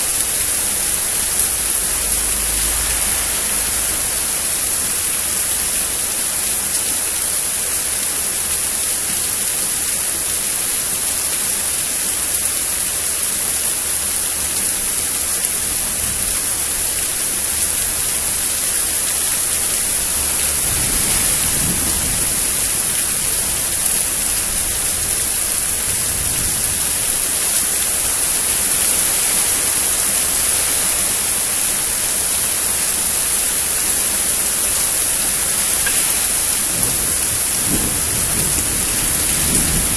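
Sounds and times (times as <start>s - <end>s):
steady rain falling: 0.0s - 39.9s
distant thunder rumbling: 19.8s - 28.0s, 34.7s - 39.9s.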